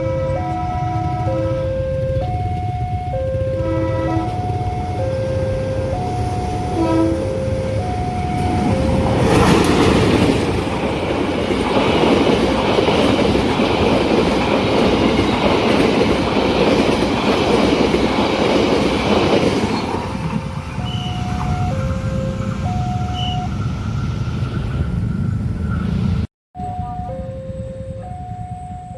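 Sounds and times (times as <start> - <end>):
level crossing warning chime: 0.0 - 9.6, 20.5 - 23.5, 26.6 - 28.9
train passing loudly: 0.0 - 26.3.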